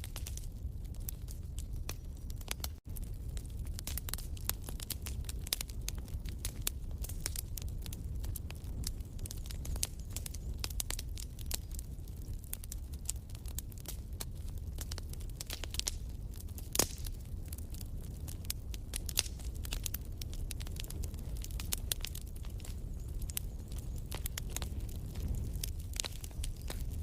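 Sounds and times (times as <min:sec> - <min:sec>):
low steady fire rumble: 0:00.0 - 0:27.0
wood fire crackling: 0:00.0 - 0:27.0
fire pop: 0:13.8 - 0:27.0.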